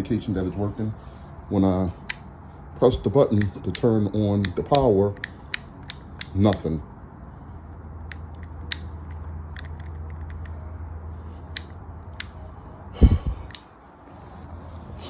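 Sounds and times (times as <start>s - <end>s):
heavy thump: 13.0s - 13.4s.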